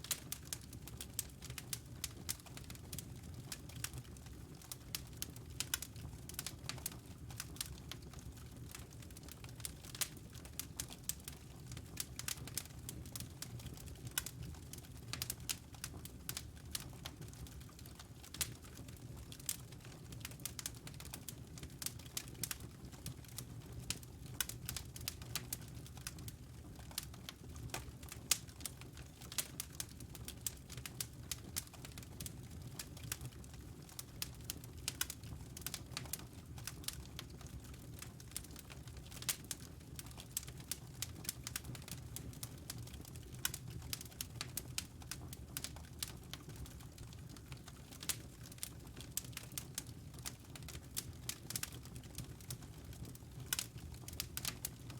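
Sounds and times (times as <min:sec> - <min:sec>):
low rumble of flame: 0:00.0 - 0:54.9
wood fire crackling: 0:00.0 - 0:54.9.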